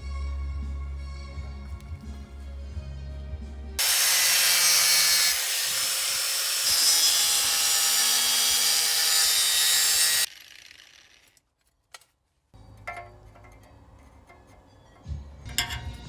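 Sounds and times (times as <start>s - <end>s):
tool rasping on a surface: 3.8s - 10.3s.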